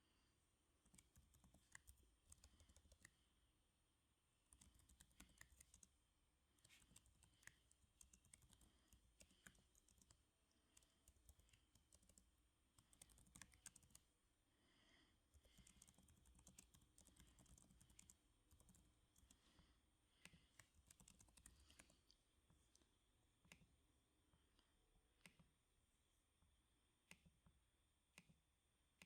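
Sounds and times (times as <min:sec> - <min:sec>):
soft computer keyboard typing: 0:00.8 - 0:03.3, 0:04.5 - 0:14.1, 0:15.3 - 0:23.8.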